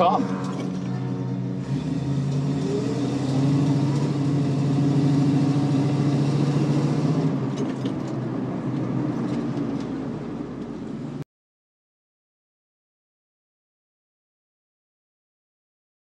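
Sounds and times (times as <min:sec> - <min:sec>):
car engine running: 0:00.0 - 0:11.2.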